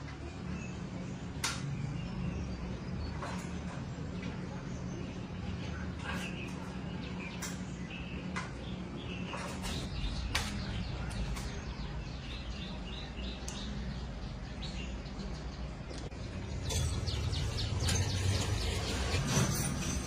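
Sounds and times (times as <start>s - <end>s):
small birds chirping: 0.0s - 19.7s
steady low rumble: 9.8s - 20.0s.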